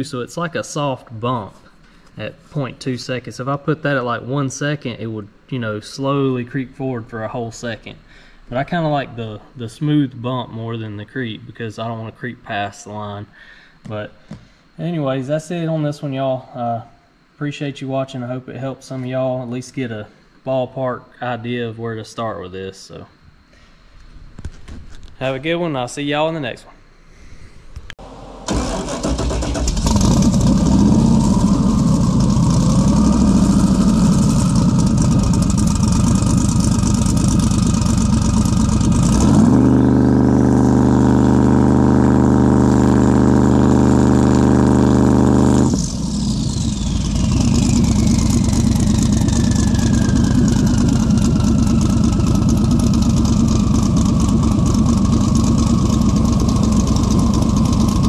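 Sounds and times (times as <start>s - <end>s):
car engine idling and revving: 28.0s - 58.0s
high turbo whine: 28.0s - 58.0s.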